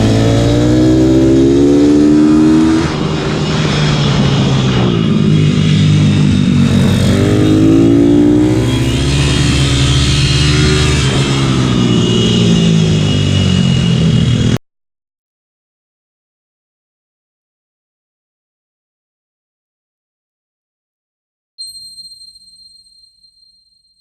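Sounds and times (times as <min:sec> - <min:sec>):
motorbike engine revving: 0:00.0 - 0:14.6.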